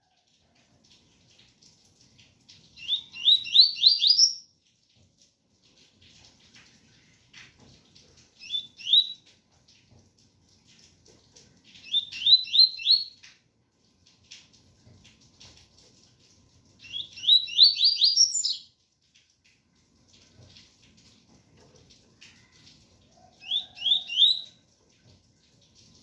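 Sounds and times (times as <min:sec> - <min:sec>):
faint rain patter: 0:00.0 - 0:26.0
bird whistled song: 0:02.8 - 0:04.4, 0:08.4 - 0:09.2, 0:11.8 - 0:13.2, 0:16.8 - 0:18.7, 0:23.4 - 0:24.6.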